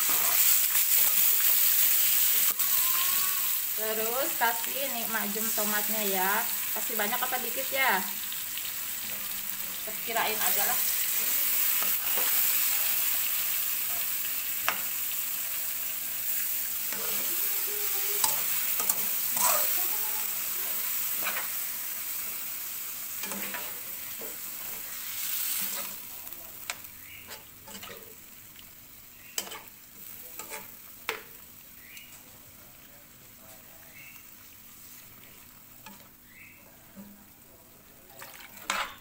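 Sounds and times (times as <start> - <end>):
chicken sizzling in a wok: 0.0 - 39.0
spatula scraping and knocking pan: 27.3 - 28.1, 30.4 - 31.2.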